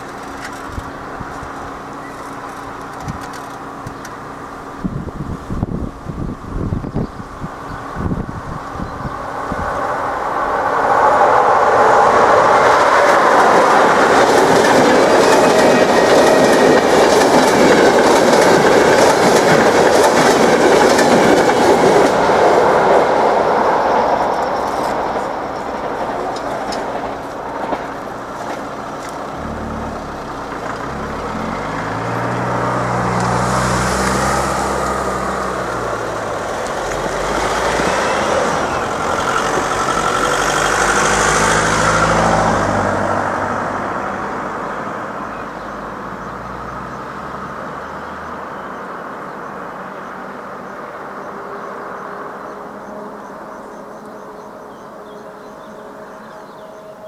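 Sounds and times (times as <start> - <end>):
passenger train passing: 0.0 - 57.0
car engine revving: 29.3 - 36.4.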